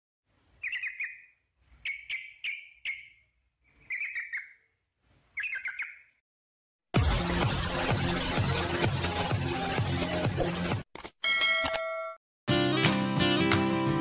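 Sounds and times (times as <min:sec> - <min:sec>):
bird chirping: 0:00.5 - 0:06.2.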